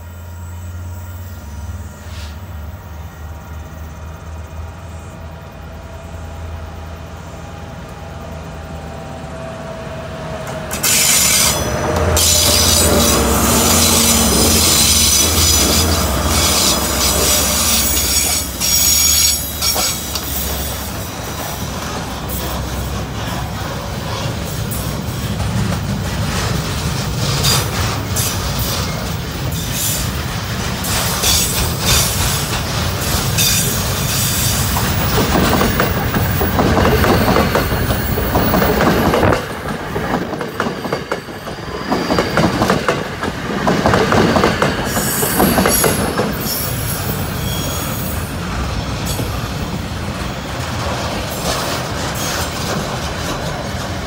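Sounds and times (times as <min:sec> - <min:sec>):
train wheels squealing: 0:00.0 - 0:05.2, 0:10.5 - 0:25.3, 0:27.2 - 0:39.4, 0:44.3 - 0:49.6, 0:51.3 - 0:53.0
freight train rolling past: 0:00.0 - 0:54.0
passenger train passing: 0:00.0 - 0:54.0
wheels clicking over rail joints: 0:10.4 - 0:46.9.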